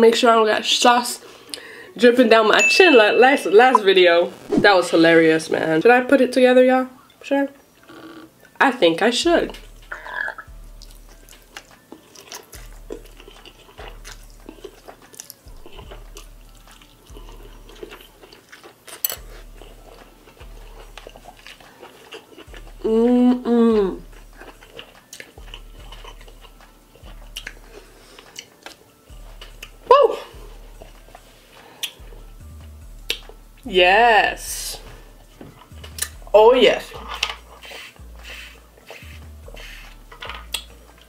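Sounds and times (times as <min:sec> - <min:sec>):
chewing noodles: 0:09.5 - 0:32.3, 0:33.0 - 0:33.4, 0:34.8 - 0:36.3, 0:36.9 - 0:41.0
wet mouth clicks: 0:09.9 - 0:11.0, 0:33.0 - 0:33.4, 0:35.8 - 0:36.2, 0:37.2 - 0:40.8
person humming: 0:22.8 - 0:24.0.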